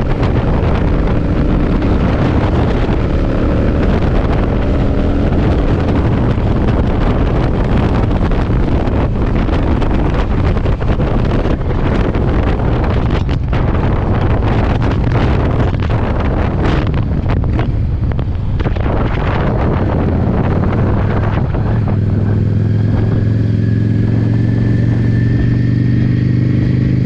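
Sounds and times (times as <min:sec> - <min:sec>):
motorcycle engine: 0:00.0 - 0:27.0
wind buffeting microphone: 0:00.0 - 0:27.0.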